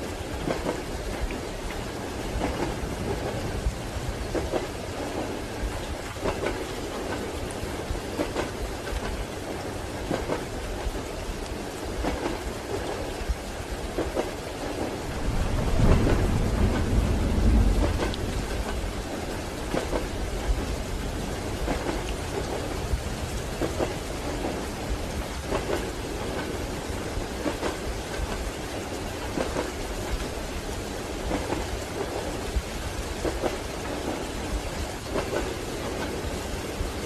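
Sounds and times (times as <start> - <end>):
steady rain: 0.0 - 37.0
train wheels clacking: 0.4 - 11.1, 15.6 - 20.8, 21.4 - 36.8
deep rumble: 15.2 - 19.0.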